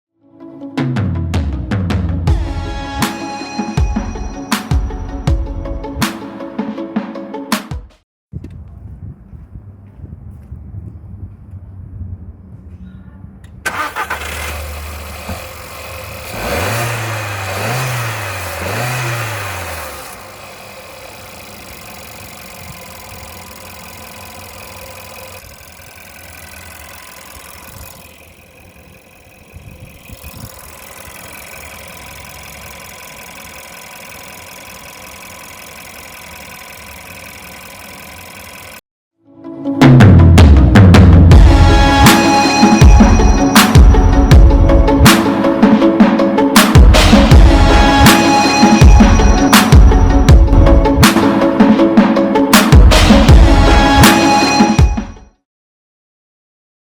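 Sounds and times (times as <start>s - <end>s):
car engine starting and revving: 13.6s - 38.8s
car engine idling: 13.7s - 38.8s.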